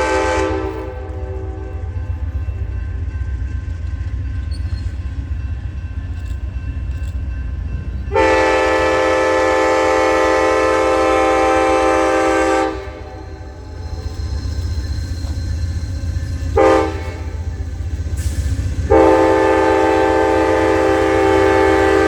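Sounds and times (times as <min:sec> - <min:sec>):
train air horn blast: 0:00.0 - 0:02.0, 0:08.1 - 0:13.5, 0:16.6 - 0:17.4, 0:18.8 - 0:22.0.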